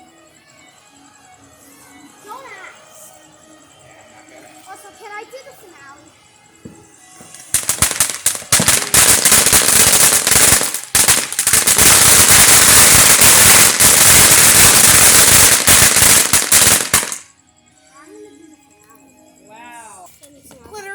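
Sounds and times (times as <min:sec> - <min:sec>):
firecrackers popping: 0:06.7 - 0:17.3.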